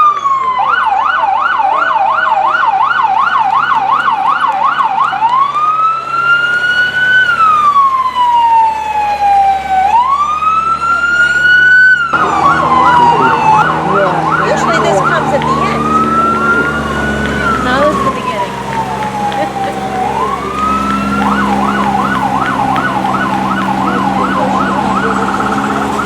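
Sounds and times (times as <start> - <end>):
emergency vehicle siren: 0.0 - 26.0
low steady drone: 12.1 - 26.0.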